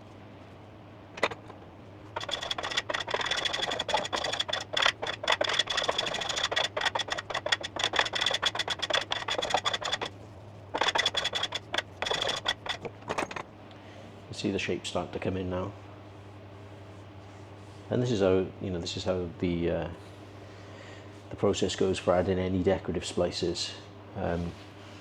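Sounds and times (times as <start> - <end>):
hand plane rasping cuts on wood: 2.2 - 10.1, 10.8 - 12.9.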